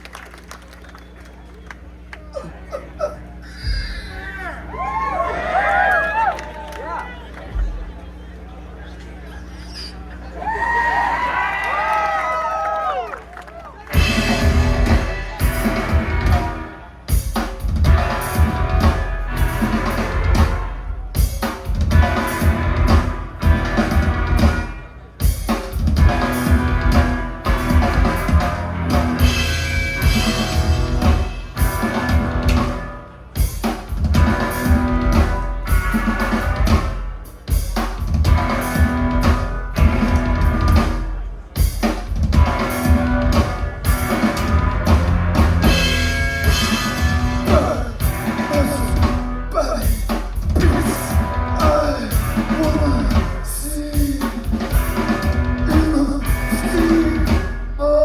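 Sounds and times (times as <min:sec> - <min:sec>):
live band music: 0:13.9 - 0:58.0.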